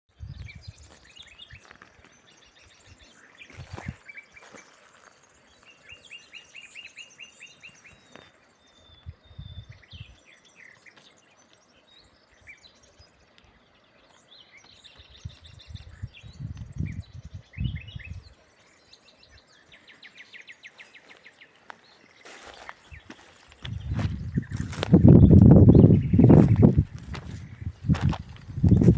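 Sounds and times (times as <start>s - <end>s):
songbirds singing and chirping: 0.1s - 28.9s.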